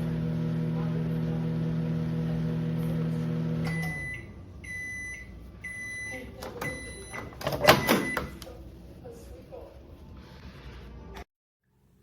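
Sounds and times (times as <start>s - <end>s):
microwave humming: 0.0s - 8.8s
microwave high beeps: 3.4s - 8.4s.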